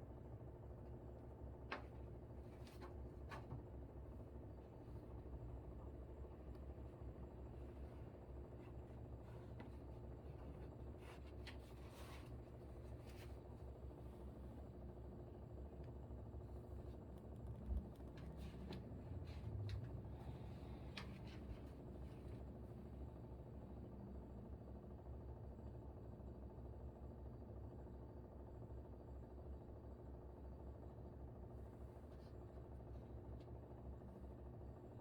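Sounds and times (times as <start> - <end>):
air conditioner humming: 0.0 - 35.0
writing and paper rustling: 7.5 - 14.2.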